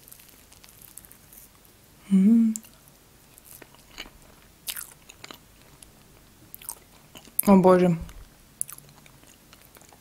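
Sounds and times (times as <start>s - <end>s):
person chewing cake: 0.0s - 1.7s, 2.5s - 7.5s, 8.1s - 10.0s
person humming mmm: 2.0s - 2.7s.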